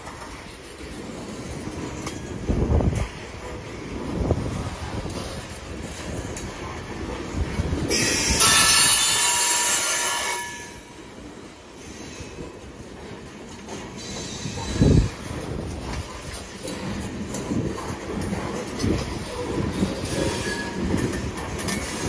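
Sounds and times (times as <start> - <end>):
train wheels rumbling and clacking: 0.0 - 22.0.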